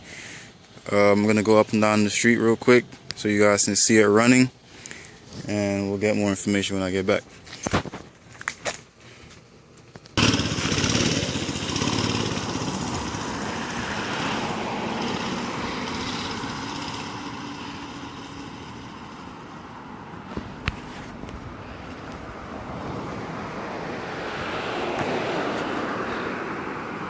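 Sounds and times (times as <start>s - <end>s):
mini bike engine running: 10.2s - 19.5s.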